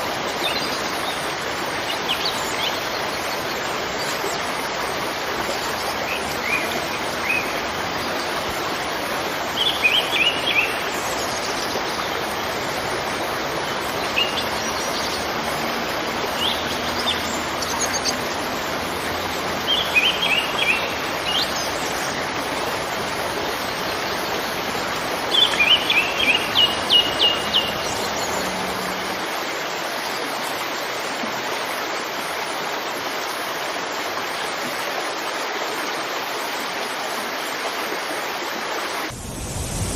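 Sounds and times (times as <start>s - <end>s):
waterfall rushing: 0.0s - 39.9s
birds chirping: 9.5s - 29.4s.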